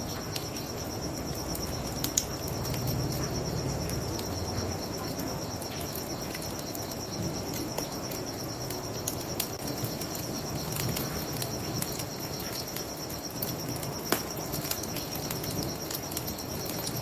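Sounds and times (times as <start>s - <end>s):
bonfire crackling and popping: 0.0s - 17.0s
crickets chirping: 0.0s - 17.0s.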